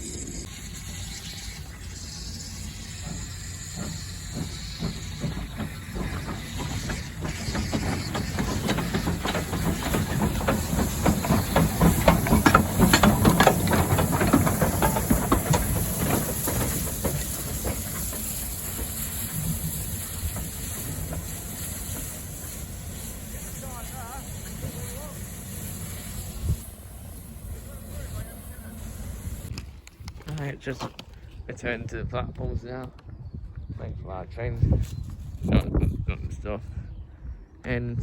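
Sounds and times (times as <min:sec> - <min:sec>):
train passing: 0:00.0 - 0:29.5
wheels clicking over rails: 0:02.6 - 0:29.5.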